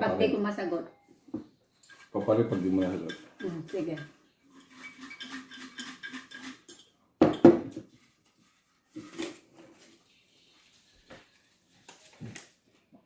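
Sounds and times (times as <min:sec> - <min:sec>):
objects rattling on a table: 0:01.8 - 0:08.0.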